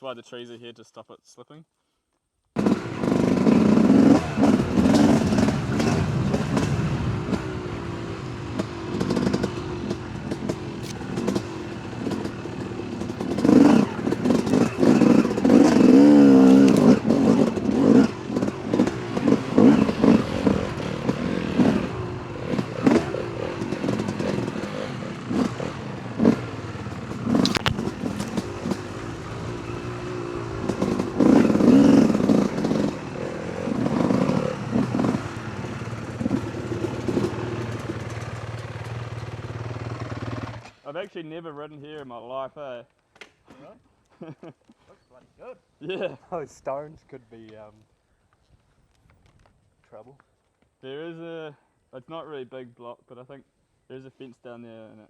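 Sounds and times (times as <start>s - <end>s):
dirt bike engine revving: 2.6s - 40.8s.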